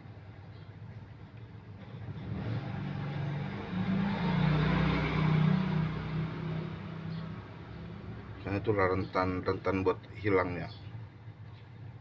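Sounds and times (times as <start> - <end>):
vehicle engine passing by: 1.8 - 9.2.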